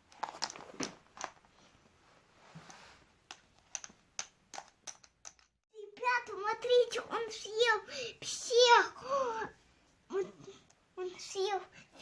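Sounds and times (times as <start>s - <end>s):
soft rustle: 0.0s - 3.3s
plastic toys clicking: 3.3s - 5.5s.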